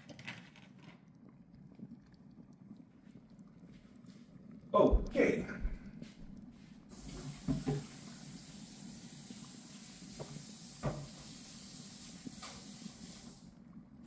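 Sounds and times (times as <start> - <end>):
steady hiss: 6.6 - 13.6.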